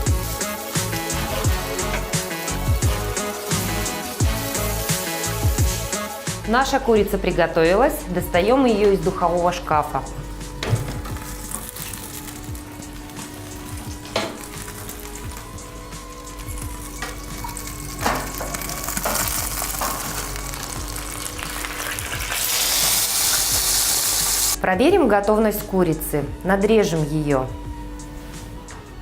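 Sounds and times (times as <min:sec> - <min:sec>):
hot fat sizzling in a pan: 0:16.2 - 0:24.6.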